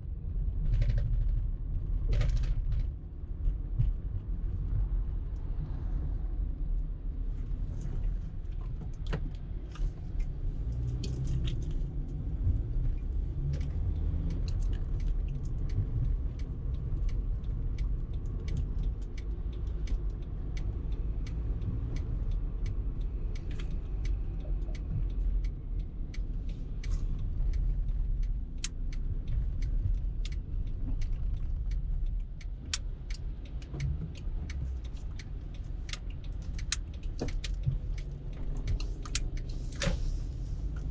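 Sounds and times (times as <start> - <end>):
low rumble of engine and road: 0.0 - 40.9
small clicks and rattles: 0.5 - 4.2.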